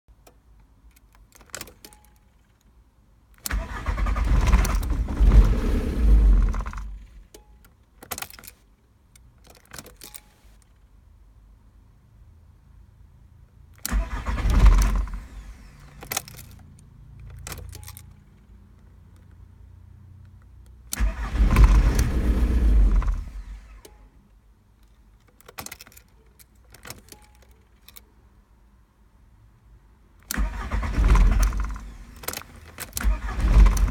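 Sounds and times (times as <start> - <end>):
light clicks and rattles: 0.2 - 2.8, 4.2 - 10.9, 13.8 - 19.5, 24.7 - 28.2
starter motor cranking diesel engine: 3.4 - 7.2, 13.8 - 16.2, 20.9 - 23.8, 30.3 - 33.9
ignition key clicks: 13.8 - 16.6, 20.9 - 24.1, 30.2 - 33.9.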